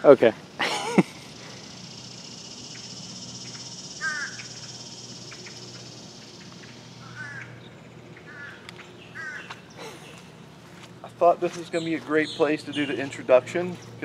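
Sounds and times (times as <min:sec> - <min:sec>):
steady high buzz: 0:00.0 - 0:14.0
harsh crow-like bird caws: 0:03.6 - 0:05.6, 0:06.9 - 0:07.6, 0:08.2 - 0:09.6.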